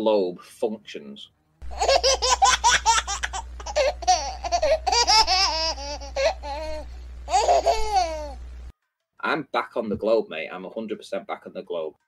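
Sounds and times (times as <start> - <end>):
steady low hum: 1.6 - 8.7
person laughing high-pitched: 1.7 - 8.4.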